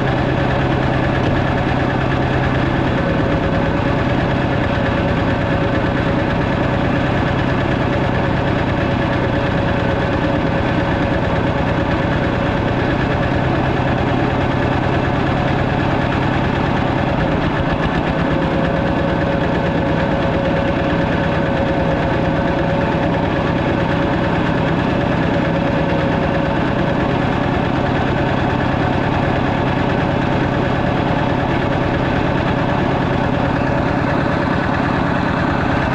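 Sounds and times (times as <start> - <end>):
diesel engine knocking: 0.0 - 35.9.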